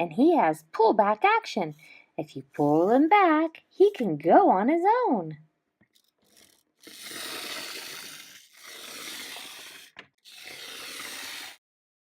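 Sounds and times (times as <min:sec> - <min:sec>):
toy spring motor and wheels running: 0:06.0 - 0:11.6.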